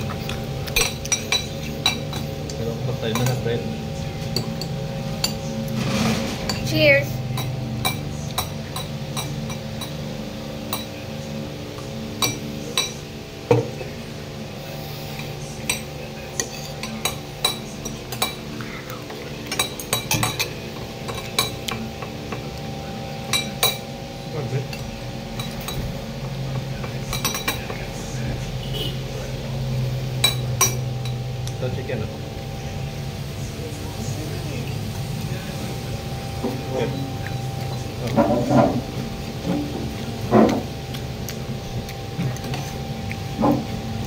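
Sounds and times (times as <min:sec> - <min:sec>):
steady background hum: 0:00.0 - 0:44.0
cutlery and plates clinking: 0:00.1 - 0:03.5, 0:19.4 - 0:22.6, 0:24.7 - 0:27.8.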